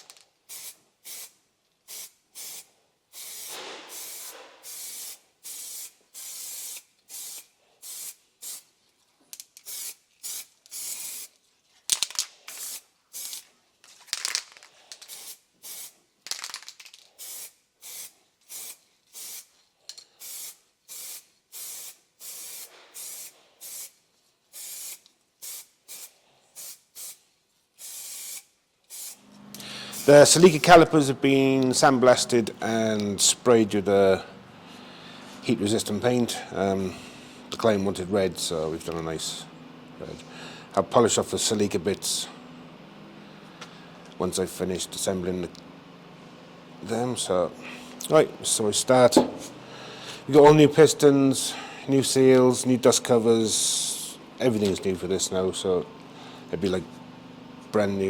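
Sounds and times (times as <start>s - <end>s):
aerosol paint spraying: 0.0s - 8.7s, 9.4s - 11.4s, 12.0s - 13.4s, 14.9s - 16.0s, 16.8s - 19.5s, 20.2s - 27.2s, 27.8s - 29.2s, 29.8s - 30.8s.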